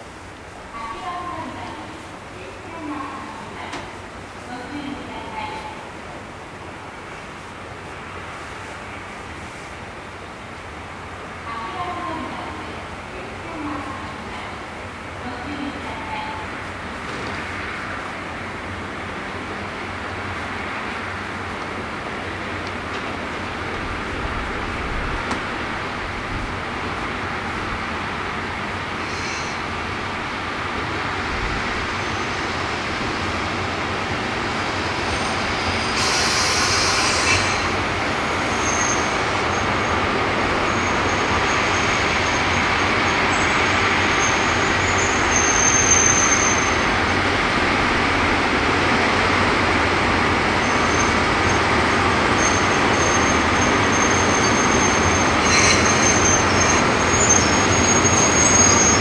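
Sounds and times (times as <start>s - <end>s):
train rumbling: 0.0s - 59.0s
short hisses: 29.0s - 29.6s, 35.9s - 37.7s
high wheel squeal: 35.1s - 39.8s, 40.7s - 46.9s, 52.3s - 59.0s.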